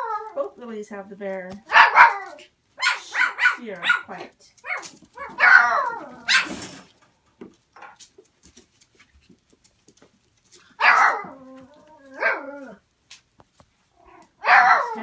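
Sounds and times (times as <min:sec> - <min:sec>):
dog whining: 0:00.0 - 0:00.5, 0:04.6 - 0:06.6, 0:10.8 - 0:12.8
dog barking: 0:01.7 - 0:06.6, 0:10.8 - 0:11.4, 0:14.4 - 0:15.0.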